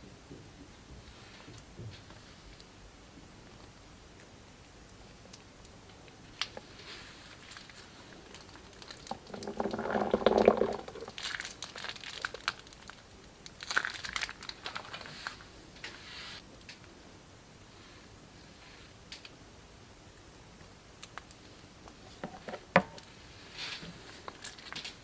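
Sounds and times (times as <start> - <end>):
slime crinkling and clicking: 7.3 - 15.1.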